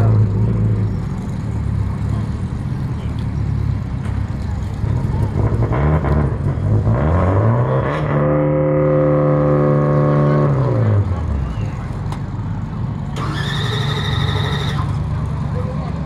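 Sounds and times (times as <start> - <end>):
drag car engine revving: 13.1 - 15.3.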